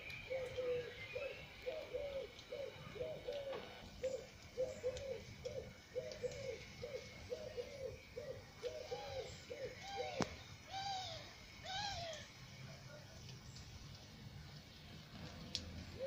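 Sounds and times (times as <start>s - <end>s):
bird hooting low notes: 0.0s - 12.3s
rising and falling bird call: 0.1s - 12.3s.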